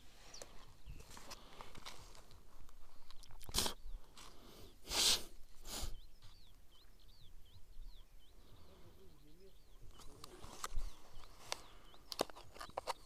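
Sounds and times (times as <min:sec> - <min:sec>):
small bird chirping: 0:00.0 - 0:01.5, 0:02.7 - 0:13.0
rustling noise: 0:00.0 - 0:06.4.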